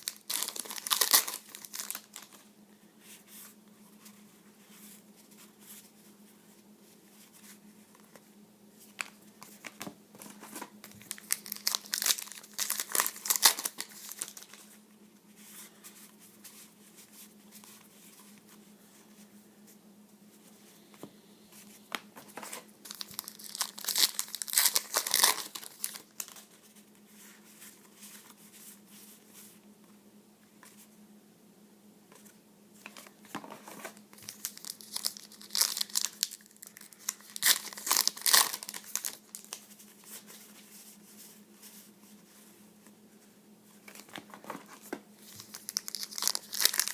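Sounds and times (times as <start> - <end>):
cellophane wrappers crinkling and tearing: 0.0 - 2.4, 10.5 - 14.6, 22.8 - 26.5, 33.8 - 40.2, 45.2 - 46.9.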